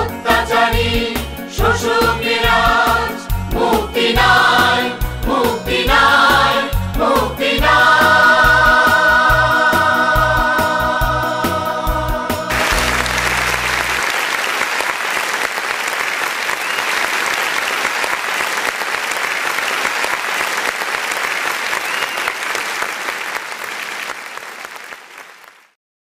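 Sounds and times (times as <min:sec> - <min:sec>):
audience applauding: 0:12.5 - 0:25.8.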